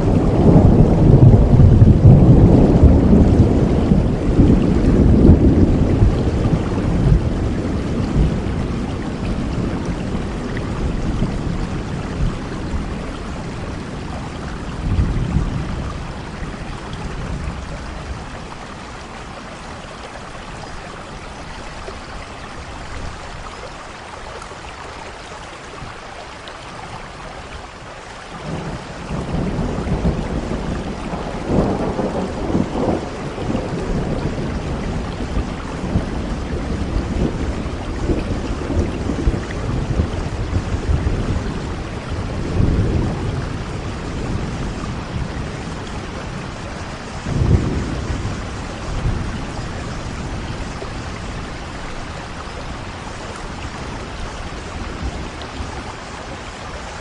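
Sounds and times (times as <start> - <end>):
rolling thunder: 0.0 - 19.4, 28.4 - 56.5
heavy rain falling: 0.0 - 57.0.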